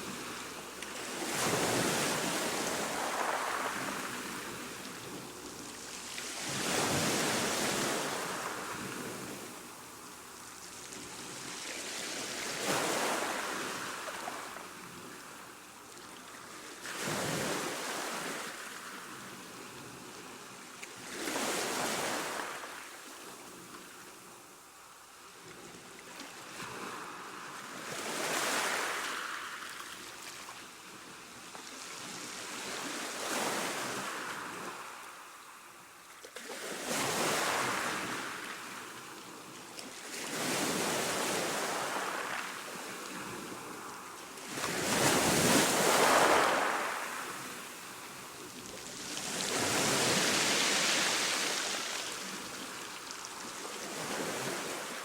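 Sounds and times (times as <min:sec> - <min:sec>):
ocean waves breaking on shore: 0:00.0 - 0:10.0, 0:11.0 - 0:15.5, 0:40.0 - 0:55.0.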